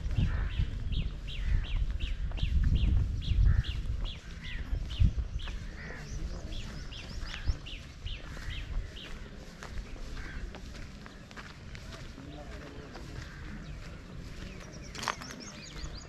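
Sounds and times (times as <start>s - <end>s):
low microphone rumble: 0.0s - 16.0s
bird chirping: 12.3s - 16.0s.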